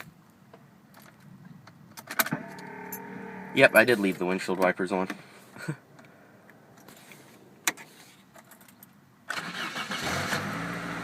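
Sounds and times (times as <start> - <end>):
car engine starting and running: 2.1 - 5.2, 9.3 - 11.0.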